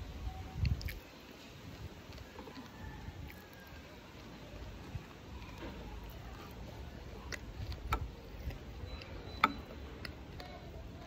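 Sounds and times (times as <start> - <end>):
close chewing of crunchy food: 0.0 - 11.0
sharp clicks: 7.2 - 10.7.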